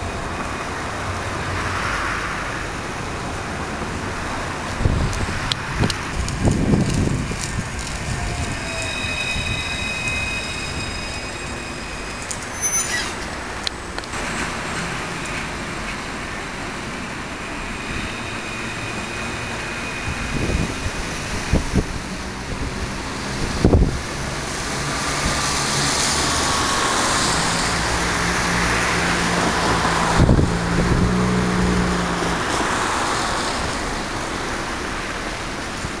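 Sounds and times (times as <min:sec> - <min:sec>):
tram rolling noise: 0:00.0 - 0:36.0
wind buffeting microphone: 0:04.0 - 0:11.0, 0:19.8 - 0:26.7, 0:29.0 - 0:32.8.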